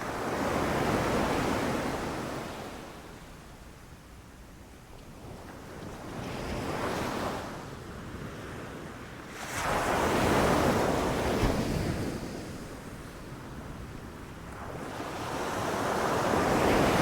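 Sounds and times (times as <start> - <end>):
ocean waves crashing on beach: 9.3 - 12.8, 14.3 - 17.0.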